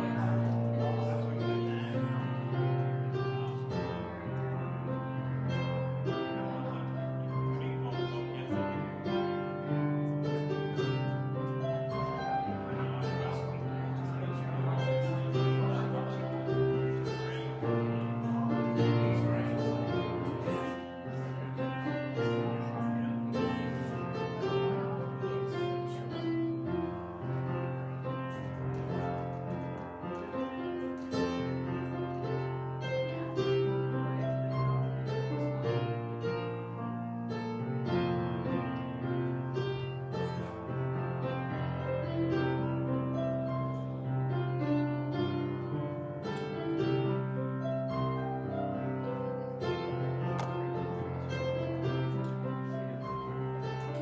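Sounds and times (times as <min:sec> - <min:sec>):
piano music with bass line: 0:00.0 - 0:54.0.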